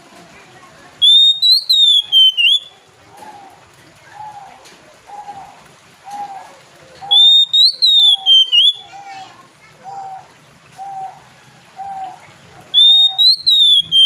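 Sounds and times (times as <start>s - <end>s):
bird whistled song: 1.0s - 2.8s, 7.0s - 8.9s, 12.8s - 14.0s.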